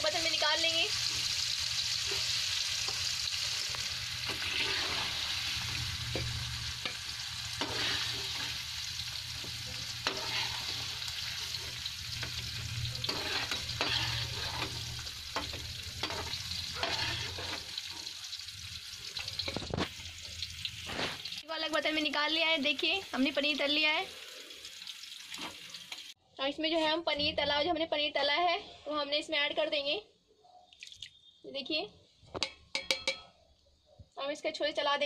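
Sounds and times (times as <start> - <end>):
food frying in hot oil: 0.0 - 26.2
spatula scraping and knocking pan: 4.2 - 18.2.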